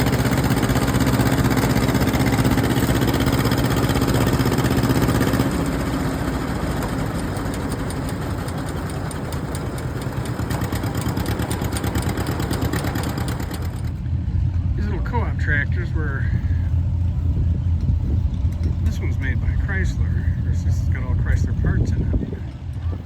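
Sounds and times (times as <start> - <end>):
fast even engine putter: 0.0 - 14.0, 17.4 - 23.0
engine humming: 0.0 - 23.0.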